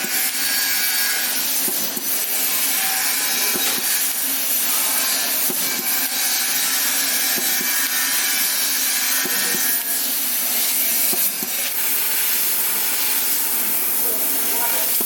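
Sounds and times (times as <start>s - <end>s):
laser cutter hissing: 0.0s - 15.0s.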